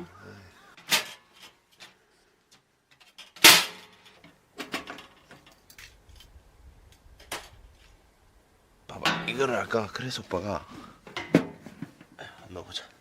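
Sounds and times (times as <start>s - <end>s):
objects knocking and clattering: 2.9s - 6.0s, 9.0s - 9.5s, 11.0s - 12.1s.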